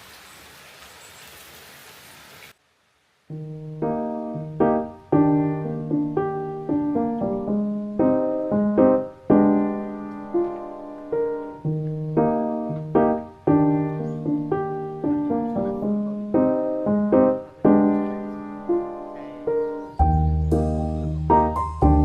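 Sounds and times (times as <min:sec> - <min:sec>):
piano music: 0:03.3 - 0:22.0.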